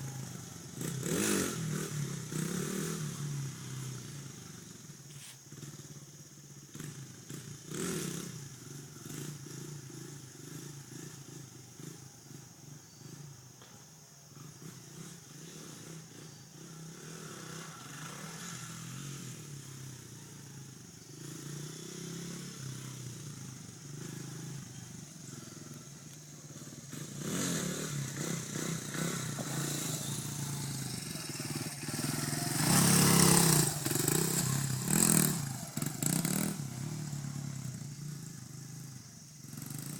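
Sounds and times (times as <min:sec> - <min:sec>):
dirt bike engine revving: 0:00.0 - 0:04.2, 0:14.4 - 0:19.8, 0:21.1 - 0:39.9.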